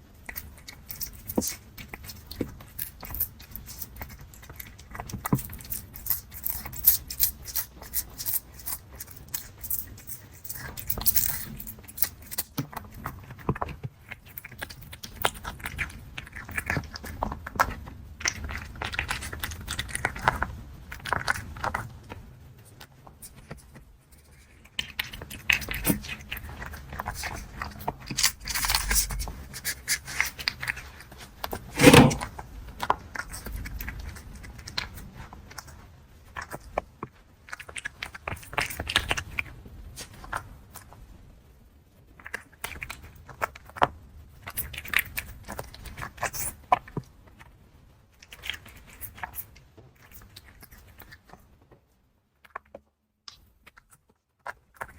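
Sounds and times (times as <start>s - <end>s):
cat crunching dry kibble: 0.2s - 41.0s, 42.1s - 47.4s
loud knock: 31.8s - 32.2s.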